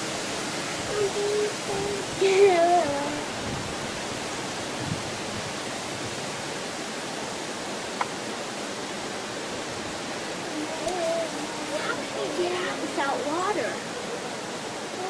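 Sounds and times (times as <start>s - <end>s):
water rushing: 0.0s - 15.0s
faint click: 8.0s - 8.2s.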